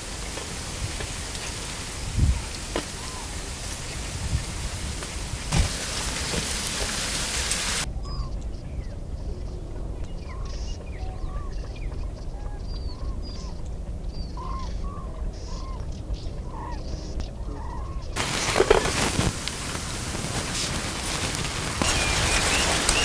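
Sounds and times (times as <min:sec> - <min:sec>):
loud even hiss: 0:00.0 - 0:07.9, 0:18.2 - 0:23.0
birds chirping: 0:00.0 - 0:08.4, 0:18.1 - 0:23.0.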